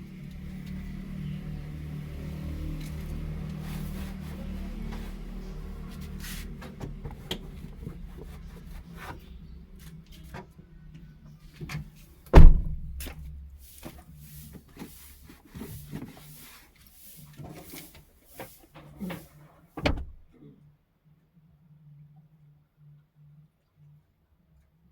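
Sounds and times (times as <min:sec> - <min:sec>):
small clicks and knocks in a car: 0:04.8 - 0:14.9, 0:19.8 - 0:20.3
car door shutting: 0:12.3 - 0:13.3, 0:19.8 - 0:20.3.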